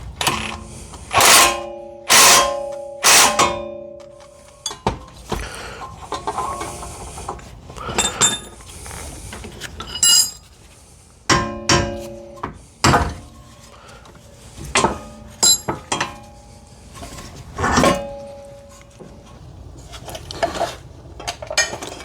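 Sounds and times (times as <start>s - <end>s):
metal tools clanking: 0.2s - 8.7s, 9.7s - 10.6s, 14.6s - 19.4s, 20.2s - 22.0s.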